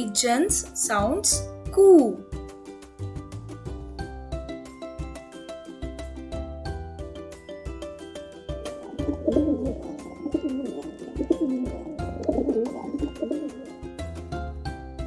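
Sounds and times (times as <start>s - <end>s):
upbeat background music: 0.0s - 15.0s
pigeon cooing: 8.7s - 13.8s.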